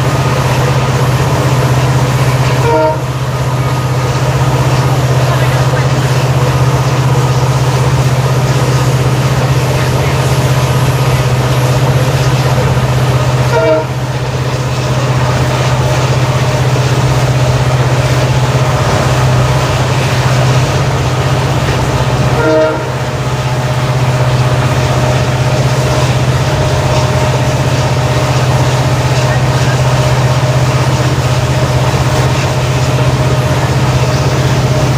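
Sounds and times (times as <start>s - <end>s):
diesel locomotive engine humming: 0.0s - 34.9s.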